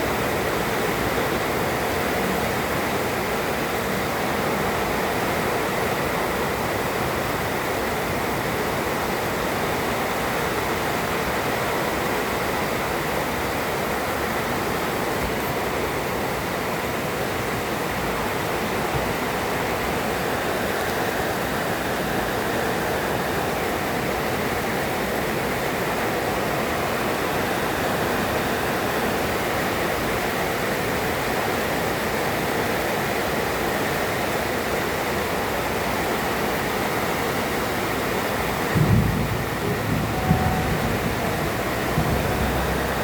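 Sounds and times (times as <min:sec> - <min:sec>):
heavy rain pouring: 0:00.0 - 0:43.0
low thunder rumble: 0:38.5 - 0:43.0.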